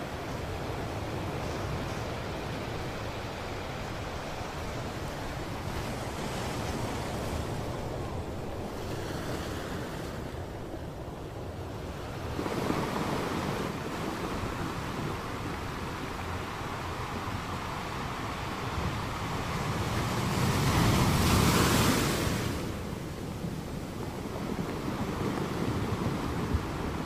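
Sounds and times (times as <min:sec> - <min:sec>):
ocean surf: 0:00.0 - 0:27.0
wind: 0:00.0 - 0:27.0.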